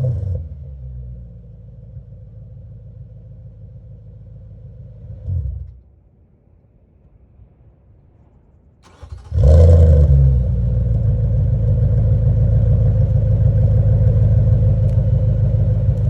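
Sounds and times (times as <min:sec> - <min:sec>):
car engine idling: 0:08.8 - 0:16.0.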